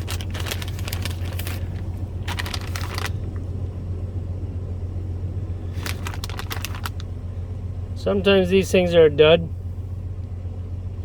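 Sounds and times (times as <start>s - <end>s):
crackling rustle: 0.0s - 3.5s, 5.7s - 7.1s
steady low hum: 0.0s - 11.0s.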